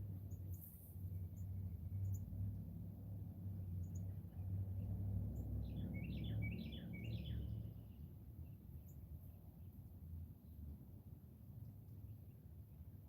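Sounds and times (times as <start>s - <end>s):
songbird chirping: 0.0s - 2.6s, 3.4s - 9.4s
steady low rumble: 0.0s - 13.0s.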